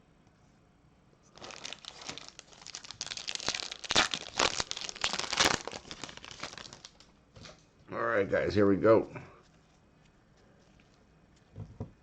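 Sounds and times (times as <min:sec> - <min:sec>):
wrapper crinkling and tearing: 0:01.3 - 0:07.1.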